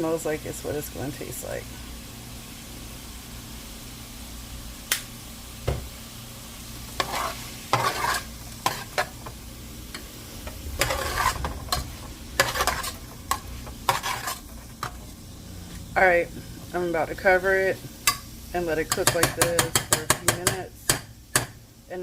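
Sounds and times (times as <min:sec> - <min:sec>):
steady low hum: 0:06.5 - 0:19.6
utensil scraping a frying pan: 0:06.9 - 0:15.9.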